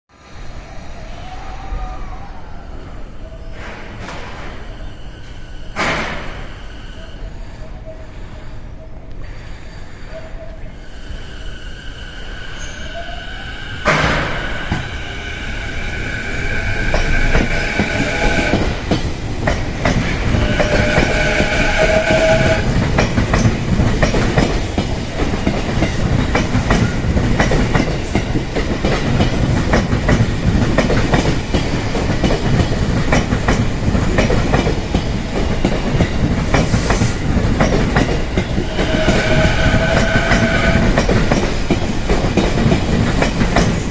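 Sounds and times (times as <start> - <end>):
sharp bang: 13.8 - 14.9
electric train running: 13.8 - 43.9.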